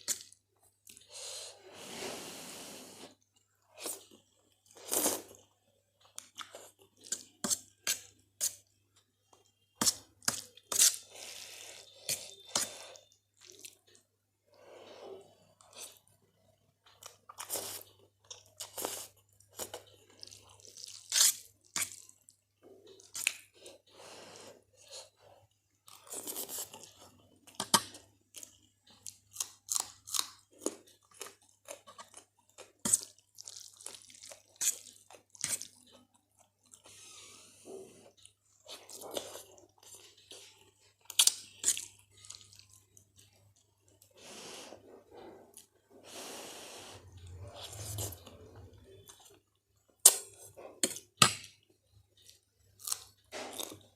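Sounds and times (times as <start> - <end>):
soft wet chewing: 0.0 - 1.4, 3.1 - 53.9
faint low hum: 35.7 - 50.9.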